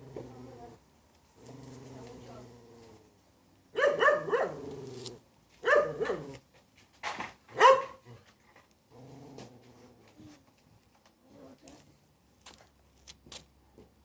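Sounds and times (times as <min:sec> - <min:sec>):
dog barking: 0:03.8 - 0:04.6, 0:05.6 - 0:06.4, 0:07.5 - 0:08.0.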